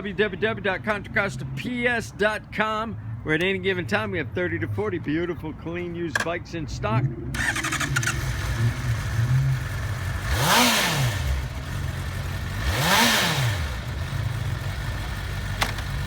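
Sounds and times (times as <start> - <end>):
motorcycle engine revving: 7.3 - 16.0
motorcycle engine idling: 7.4 - 16.0.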